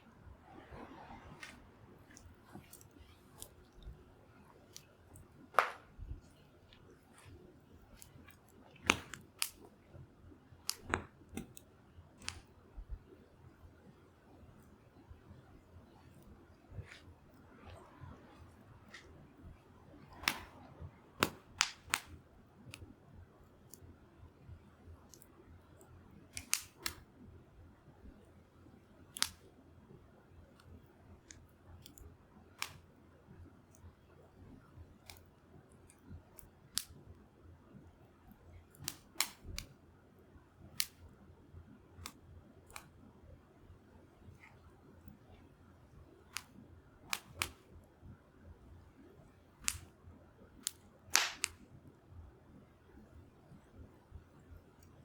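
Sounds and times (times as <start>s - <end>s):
faint low hiss: 0.0s - 55.0s
wood fire pops and snaps: 5.5s - 6.2s, 8.8s - 9.7s, 10.7s - 11.6s, 20.1s - 20.6s, 21.2s - 22.2s, 26.3s - 27.0s, 29.2s - 29.4s, 32.6s - 32.8s, 36.7s - 37.0s, 38.8s - 39.7s, 49.6s - 49.9s, 50.6s - 51.6s
campfire crackling and popping: 51.1s - 51.5s.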